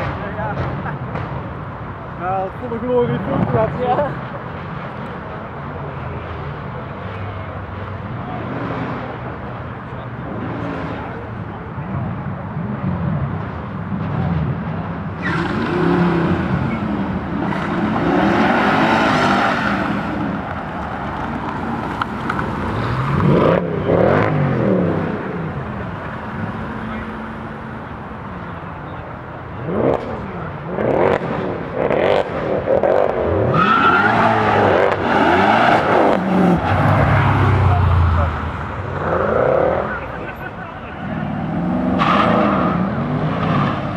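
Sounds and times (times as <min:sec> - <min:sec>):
car engine revving: 0:12.6 - 0:43.9
car engine running: 0:16.5 - 0:31.8.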